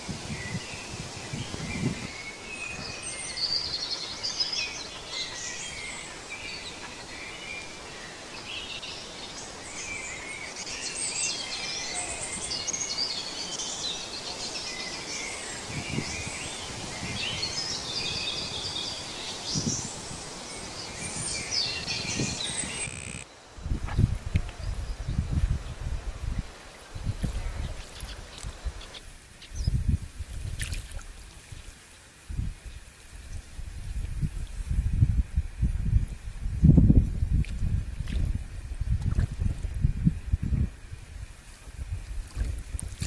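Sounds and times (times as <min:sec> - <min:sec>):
outdoor background hiss: 0:00.0 - 0:39.0, 0:39.6 - 0:43.0
songbirds chirping and trilling: 0:00.4 - 0:23.4, 0:26.9 - 0:29.9.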